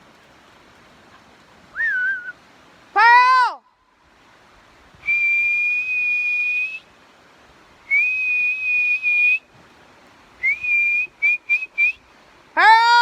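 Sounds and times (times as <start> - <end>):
person whistling for dog: 1.8 - 2.3, 7.9 - 9.4, 10.4 - 12.0.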